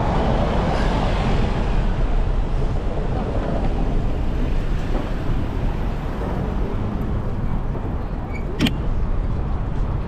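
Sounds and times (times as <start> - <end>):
city street traffic: 0.0 - 10.0
sharp click: 8.6 - 8.8.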